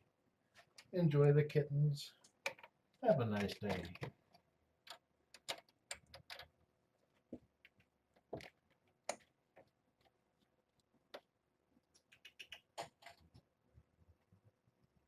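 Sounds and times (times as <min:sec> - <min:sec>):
faint irregular clicks and taps: 0:00.5 - 0:01.0, 0:02.2 - 0:13.5.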